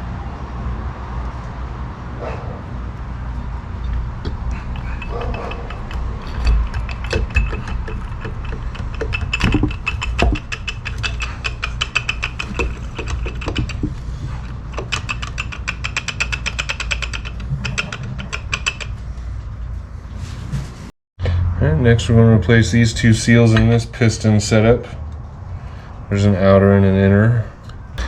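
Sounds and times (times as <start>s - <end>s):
clicks and light knocks: 3.4s - 19.6s
rapid clicking: 3.7s - 19.3s.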